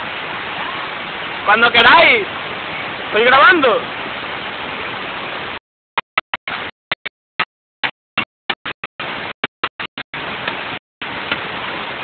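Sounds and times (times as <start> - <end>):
flowing water rushing: 0.0 - 5.6, 8.8 - 12.0.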